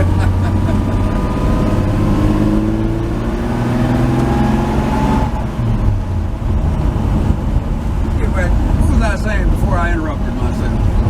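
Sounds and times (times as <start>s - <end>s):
pickup engine accelerating: 0.0s - 11.0s.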